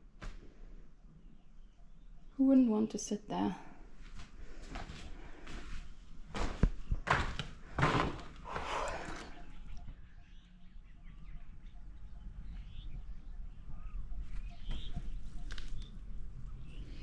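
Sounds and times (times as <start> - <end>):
faint bird chirps: 8.5 - 17.0.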